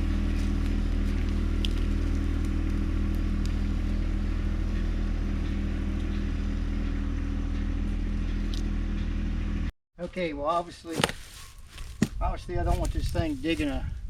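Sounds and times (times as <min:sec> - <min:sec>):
tractor diesel engine running: 0:00.0 - 0:09.7.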